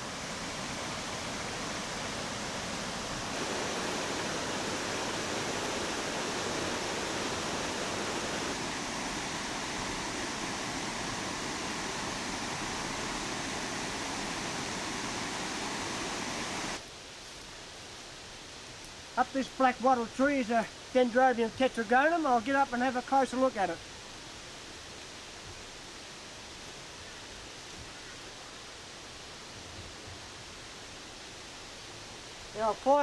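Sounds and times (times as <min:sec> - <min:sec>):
steady rushing noise: 0:00.0 - 0:16.8.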